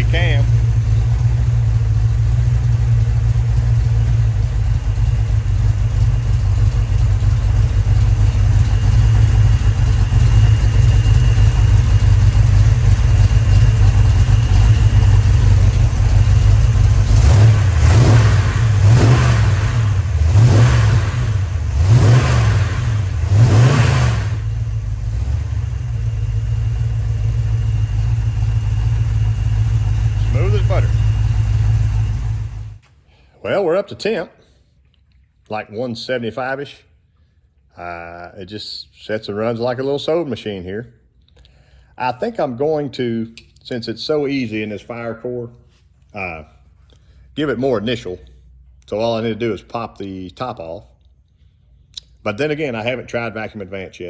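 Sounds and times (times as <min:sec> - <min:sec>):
car engine idling and revving: 0:00.0 - 0:32.8.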